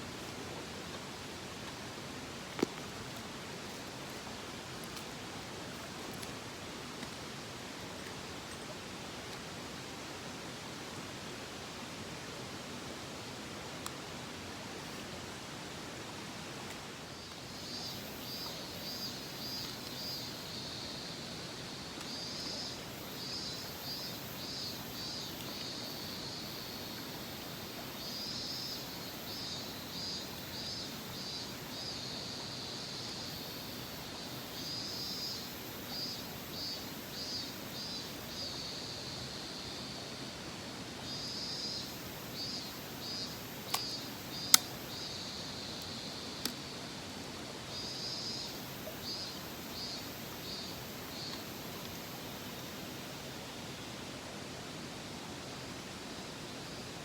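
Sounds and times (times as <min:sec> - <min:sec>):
mountain stream rushing: 0:00.0 - 0:22.1
sharp clicks: 0:43.7 - 0:44.8.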